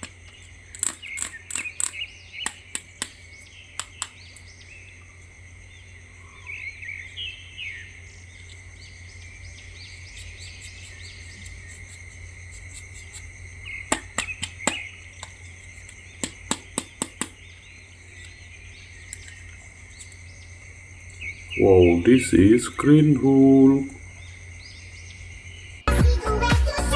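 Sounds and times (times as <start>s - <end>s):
bird chirps: 0.0s - 26.0s
insects high-pitched drone: 0.0s - 26.9s.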